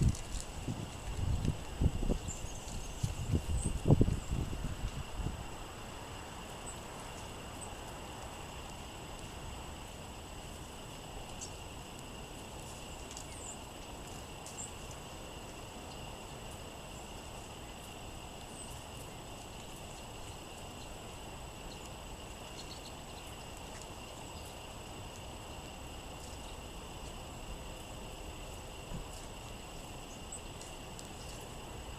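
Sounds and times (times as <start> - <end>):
wind noise: 0.0 - 5.7
songbird chips: 0.0 - 31.9.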